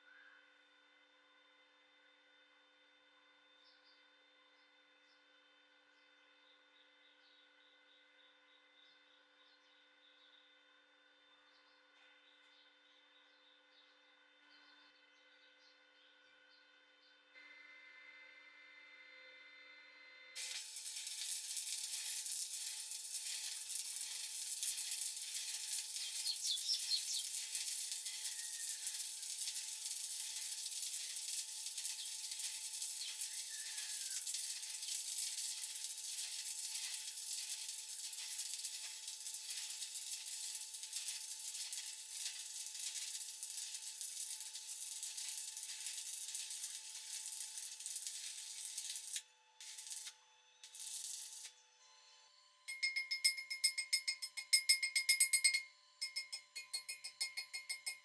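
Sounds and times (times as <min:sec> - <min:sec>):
welding arc crackling and hissing: 0:20.4 - 0:51.5.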